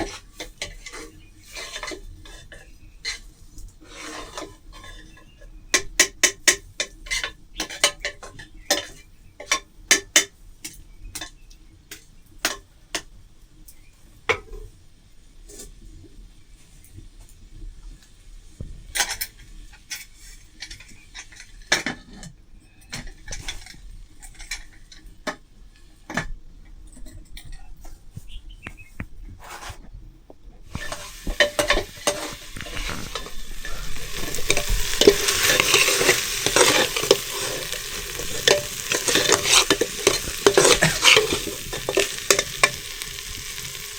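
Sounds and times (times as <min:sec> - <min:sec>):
metal spoon scraping pot: 0:00.0 - 0:09.6, 0:30.7 - 0:43.9
food sizzling in oil: 0:30.7 - 0:43.9.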